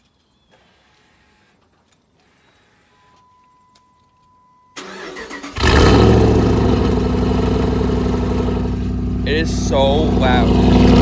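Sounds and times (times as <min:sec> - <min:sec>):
truck engine starting and idling: 0:04.8 - 0:11.0.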